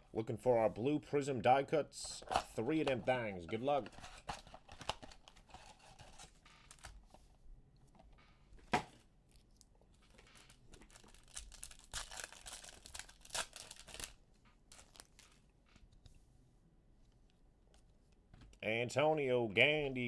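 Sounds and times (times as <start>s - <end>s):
packaging tearing and crinkling: 10.1s - 15.4s.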